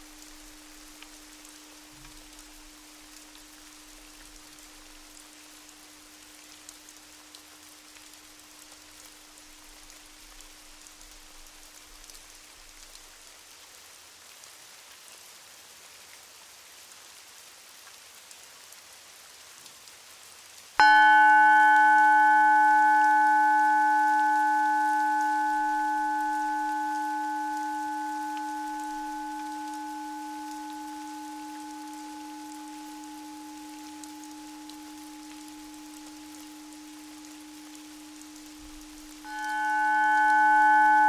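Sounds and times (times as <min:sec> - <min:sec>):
singing bowl ringing: 0:00.0 - 0:07.9, 0:20.8 - 0:41.0
soft steady hiss: 0:00.0 - 0:41.0.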